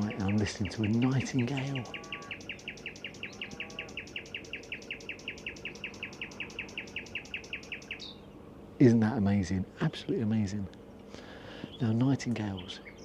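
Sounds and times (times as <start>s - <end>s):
nightingale singing fast repeated notes: 0.0s - 8.8s.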